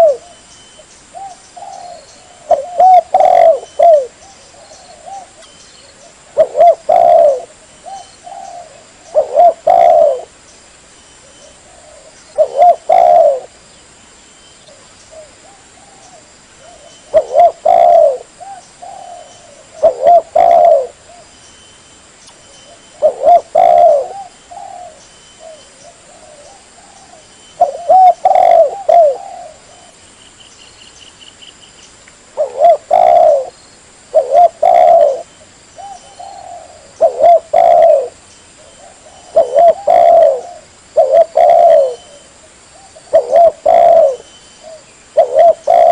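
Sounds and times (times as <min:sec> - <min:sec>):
dove cooing: 0:00.0 - 0:10.4, 0:11.2 - 0:13.6, 0:14.7 - 0:21.3, 0:22.7 - 0:30.0, 0:32.4 - 0:45.9.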